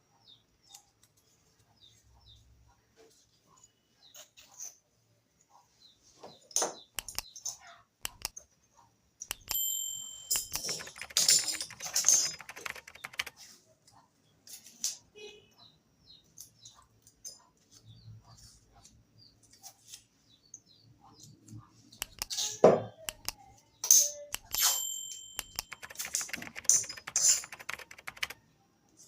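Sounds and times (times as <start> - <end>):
small hard objects clicking: 7.0 - 7.3, 8.0 - 8.3, 9.3 - 9.6, 10.3 - 13.3, 22.0 - 22.4, 23.1 - 23.4, 24.3 - 24.8, 25.4 - 28.4.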